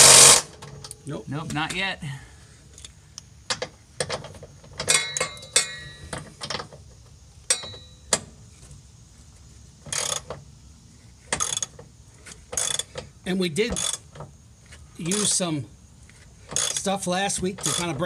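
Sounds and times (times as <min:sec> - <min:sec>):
metal tools clinking on bolts: 0:04.0 - 0:06.6, 0:07.5 - 0:08.2, 0:13.6 - 0:14.1, 0:15.0 - 0:15.5, 0:16.5 - 0:18.0.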